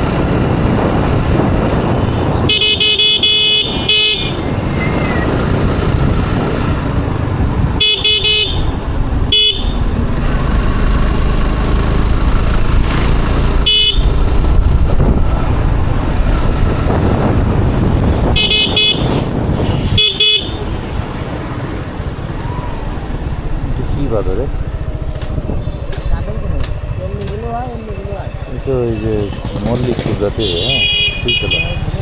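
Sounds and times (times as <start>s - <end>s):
wind on microphone: 0.0s - 27.1s
motorcycle engine rumble: 0.0s - 32.0s
vehicle horn beeping: 2.0s - 5.2s, 7.6s - 9.9s, 13.6s - 14.2s, 18.2s - 20.7s, 30.4s - 32.0s.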